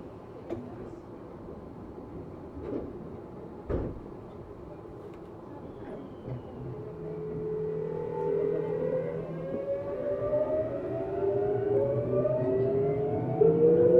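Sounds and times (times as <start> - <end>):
train knocks and clunk: 2.3 - 6.8
train motors whining: 6.8 - 13.9.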